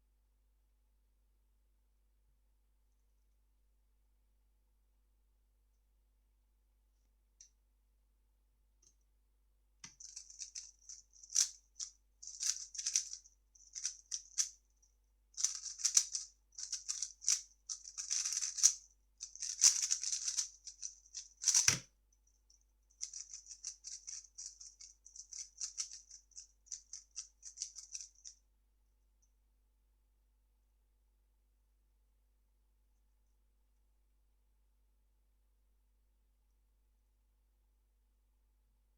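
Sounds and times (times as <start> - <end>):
plastic puzzle cube clicking: 12.3 - 14.5, 15.4 - 21.8, 23.0 - 28.3.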